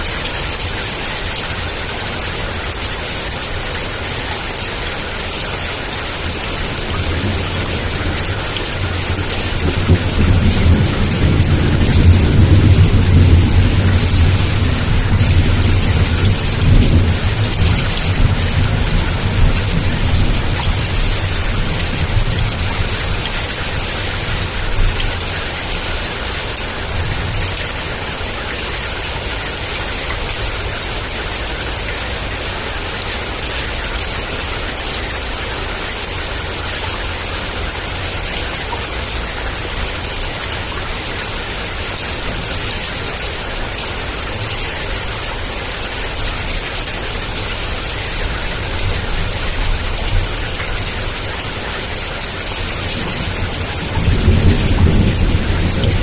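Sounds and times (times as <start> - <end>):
heavy rain pouring: 0.0 - 56.0
low rumble of thunder: 6.1 - 28.5, 52.3 - 56.0.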